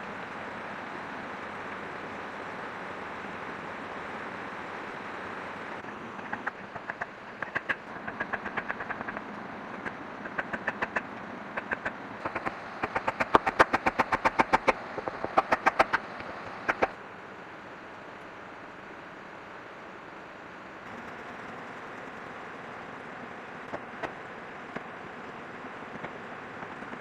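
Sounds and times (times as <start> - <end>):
tool knocking on bamboo: 6.3 - 17.0.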